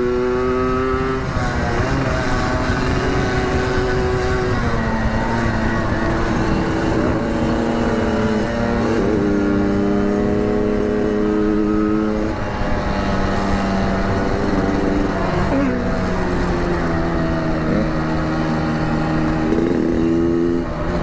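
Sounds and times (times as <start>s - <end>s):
two-stroke motorcycle engine running: 0.0s - 21.0s.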